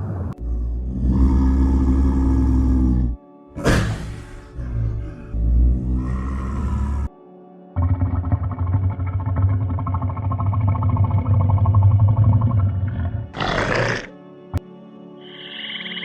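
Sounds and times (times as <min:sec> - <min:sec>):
background music: 0:00.0 - 0:16.0
large animal growling: 0:00.2 - 0:14.6.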